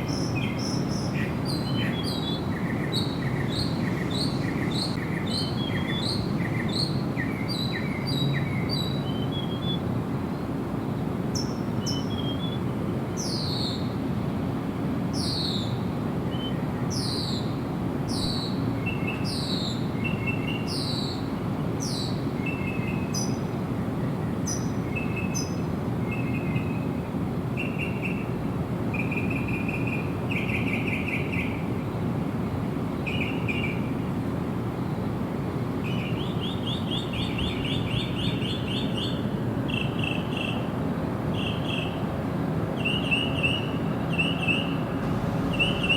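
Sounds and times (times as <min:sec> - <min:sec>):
songbirds singing: 0:00.0 - 0:14.0, 0:15.1 - 0:32.2, 0:32.8 - 0:34.0, 0:35.7 - 0:45.9
low background rumble: 0:44.7 - 0:45.9.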